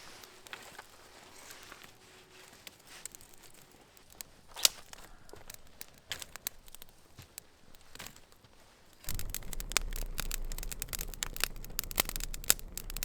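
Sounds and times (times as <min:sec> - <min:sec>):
light clicks: 0:09.1 - 0:13.0
rustling: 0:09.1 - 0:13.0.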